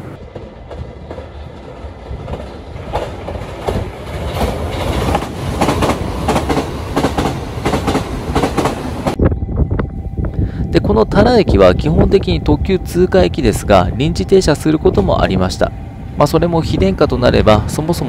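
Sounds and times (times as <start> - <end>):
electric train passing at speed: 0.0 - 18.0
wheels clacking over rail joints: 0.2 - 9.2.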